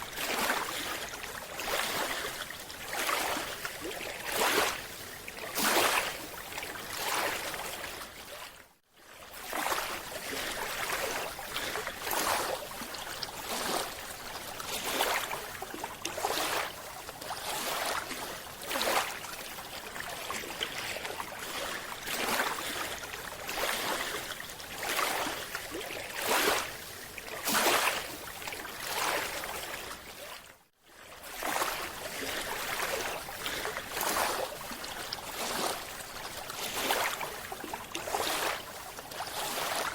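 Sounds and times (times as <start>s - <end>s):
water rushing in surges: 0.0s - 8.0s, 31.2s - 39.9s.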